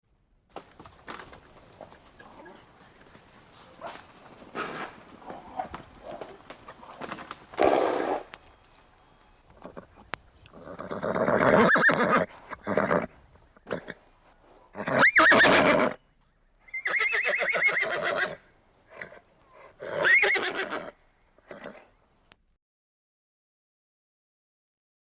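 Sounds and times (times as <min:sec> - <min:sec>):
horses neighing: 0:01.6 - 0:08.5, 0:09.5 - 0:14.0, 0:14.7 - 0:16.0, 0:16.7 - 0:21.9.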